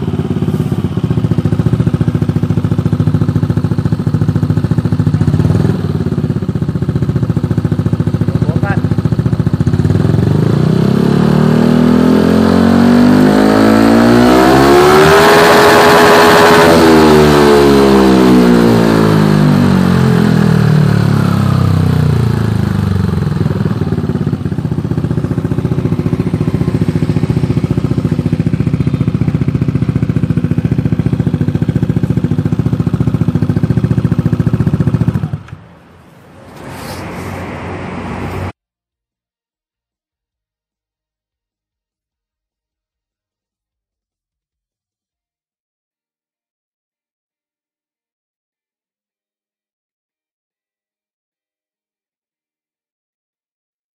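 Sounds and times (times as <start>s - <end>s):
vehicle engine running: 0.0s - 15.0s, 17.0s - 38.6s.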